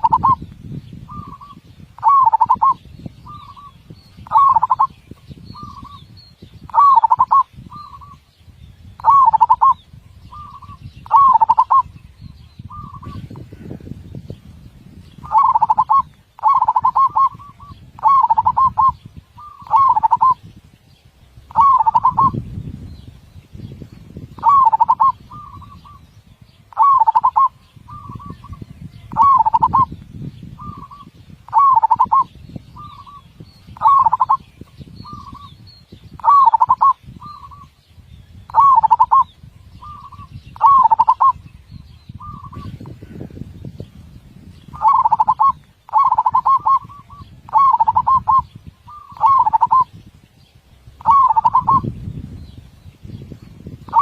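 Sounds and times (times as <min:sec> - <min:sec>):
dove cooing: 0:00.0 - 0:00.4, 0:01.1 - 0:04.9, 0:06.7 - 0:08.2, 0:09.0 - 0:11.9, 0:12.7 - 0:13.3, 0:15.2 - 0:20.4, 0:21.5 - 0:22.4, 0:24.4 - 0:26.0, 0:26.7 - 0:29.9, 0:30.6 - 0:33.2, 0:33.8 - 0:34.4, 0:36.2 - 0:37.7, 0:38.5 - 0:41.4, 0:44.8 - 0:49.9, 0:51.0 - 0:51.9.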